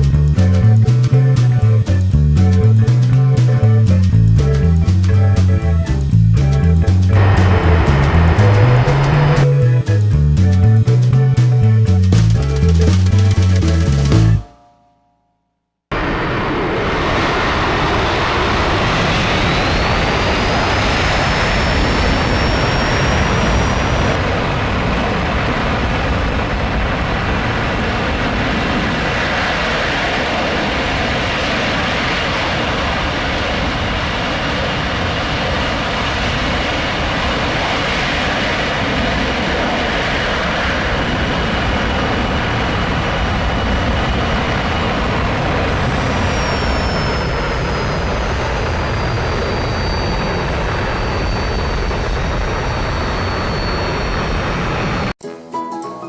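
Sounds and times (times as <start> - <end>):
jet engines roaring: 7.1 - 10.1, 15.9 - 55.2
high turbine whine: 7.1 - 10.6, 15.9 - 55.2.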